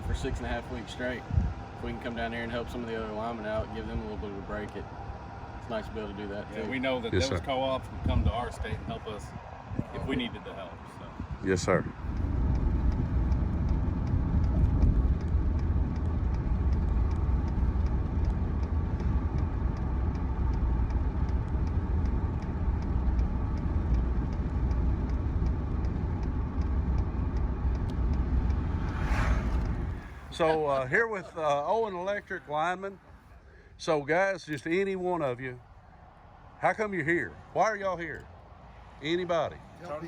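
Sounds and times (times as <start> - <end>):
engine and road rumble: 0.0 - 40.0
faint regular ticking: 0.1 - 29.3.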